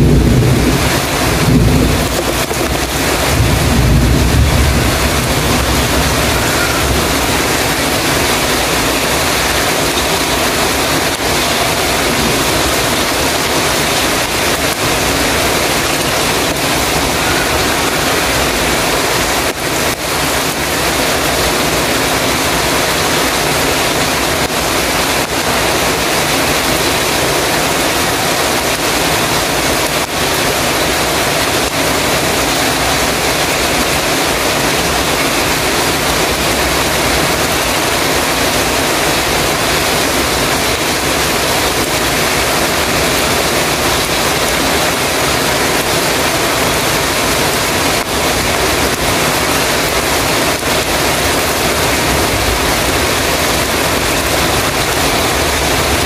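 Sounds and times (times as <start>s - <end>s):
heavy rain on a metal roof: 0.0s - 56.0s.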